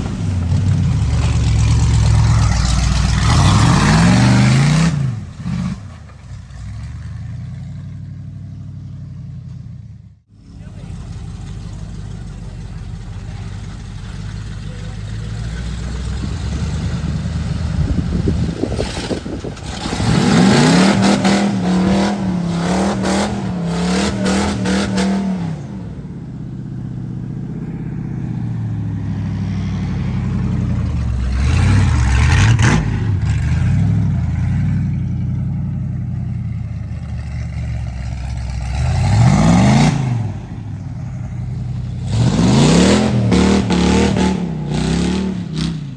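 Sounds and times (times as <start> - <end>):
engine knocks and rattles: 0.0 - 45.9
truck engine revving: 0.0 - 45.9.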